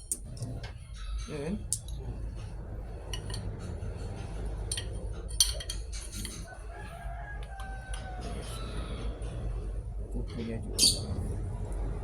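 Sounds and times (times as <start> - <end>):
distant rooster crowing: 3.6 - 12.0.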